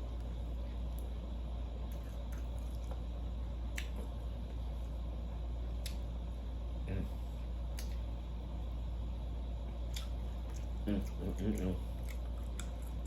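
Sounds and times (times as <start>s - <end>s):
steady low hum: 0.0s - 13.0s
eating clicks and wet smack: 3.7s - 4.1s, 5.8s - 6.1s, 7.7s - 8.1s, 9.8s - 13.0s.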